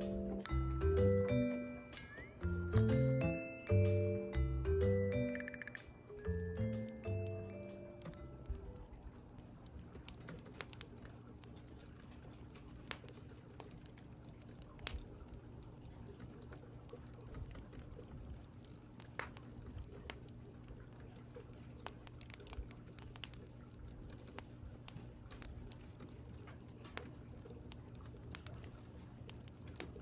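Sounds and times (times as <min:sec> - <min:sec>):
keyboard key clicks: 0:05.3 - 0:05.9.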